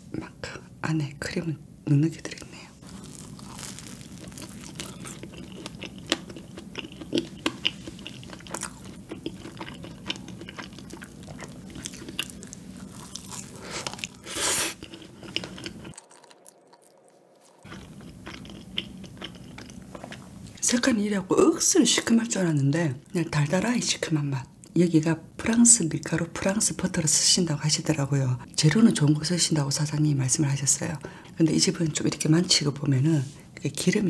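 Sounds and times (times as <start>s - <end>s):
rustling: 2.8s - 5.5s
chewing and biting food: 2.8s - 20.6s.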